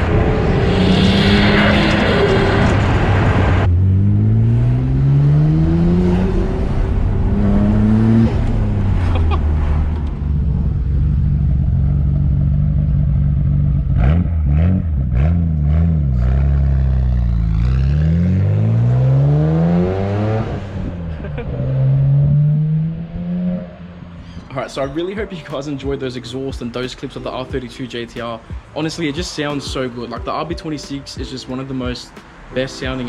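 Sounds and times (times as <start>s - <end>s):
car engine accelerating through gears: 0.0s - 24.2s.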